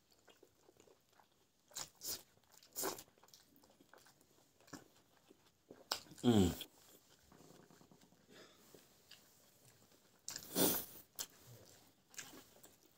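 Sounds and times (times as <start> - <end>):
crisp crunching and chewing: 0.0 - 6.3, 9.1 - 12.9.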